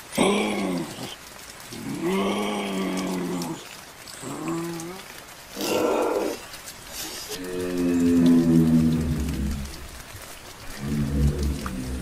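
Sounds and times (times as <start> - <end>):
animal breathy hiss: 5.5 - 7.5.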